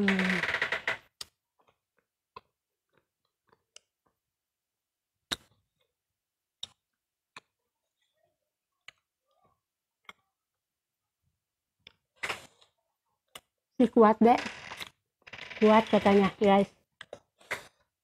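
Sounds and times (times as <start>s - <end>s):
chewing clicks and smacks: 17.0s - 17.7s.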